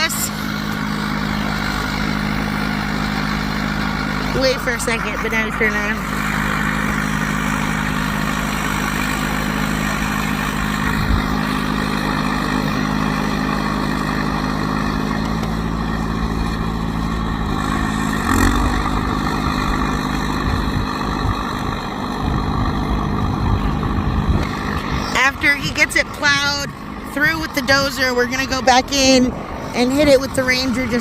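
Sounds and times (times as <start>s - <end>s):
diesel bulldozer engine running: 0.0s - 31.0s
wind buffeting microphone: 10.5s - 11.5s, 18.7s - 31.0s.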